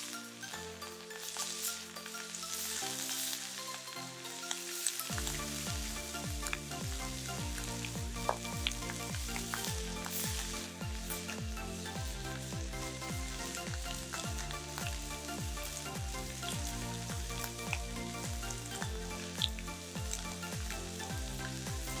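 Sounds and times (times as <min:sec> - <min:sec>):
beef sizzling in frying pan: 0:00.1 - 0:22.0
electronic music with kick drum: 0:05.0 - 0:22.0.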